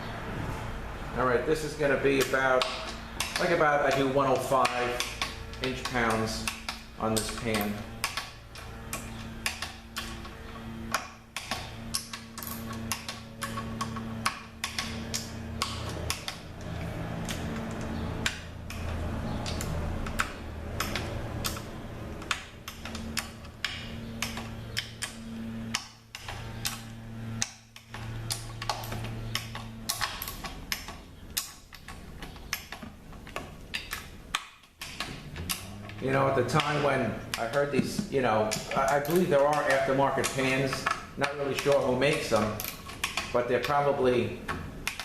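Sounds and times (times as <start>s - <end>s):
steady low hum: 0.0s - 45.0s
ratchet wrench clicking: 2.2s - 31.9s.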